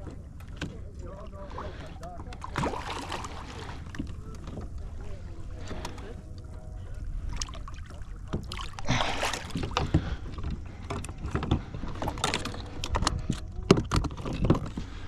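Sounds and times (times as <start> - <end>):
knocks and thumps on a kayak: 8.2 - 15.0.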